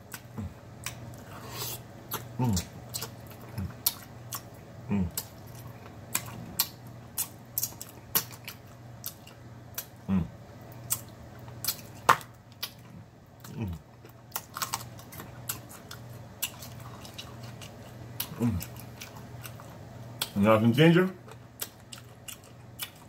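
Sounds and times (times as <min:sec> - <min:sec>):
faint low hum: 0:00.0 - 0:23.0
close chewing and lip smacks: 0:02.1 - 0:10.0, 0:12.6 - 0:20.4, 0:21.2 - 0:23.0.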